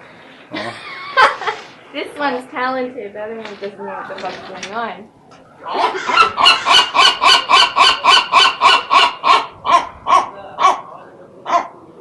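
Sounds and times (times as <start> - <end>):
gull harsh calls: 5.6 - 10.8.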